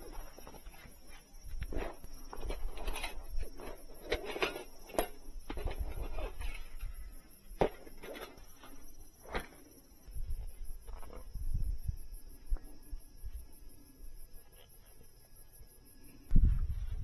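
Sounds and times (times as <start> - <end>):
camp gear clicking and rustling: 0.0 - 11.6
insects chirring: 0.0 - 17.0.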